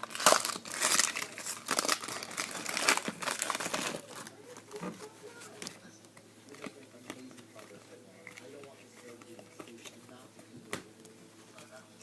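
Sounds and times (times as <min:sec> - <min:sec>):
card pack wrappers crinkling: 0:00.0 - 0:05.8.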